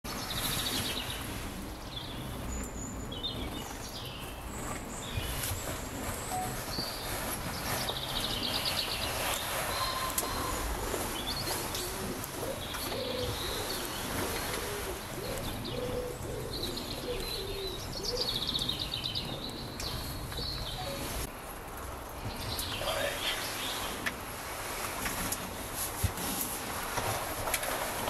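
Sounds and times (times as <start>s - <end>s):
rapid trilled birdsong: 0.1s - 21.3s
soft low bird calls: 0.1s - 21.3s.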